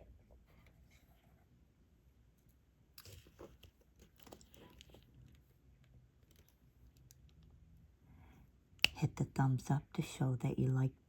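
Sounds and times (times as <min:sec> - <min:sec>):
small clicks and crinkles: 0:02.4 - 0:07.7.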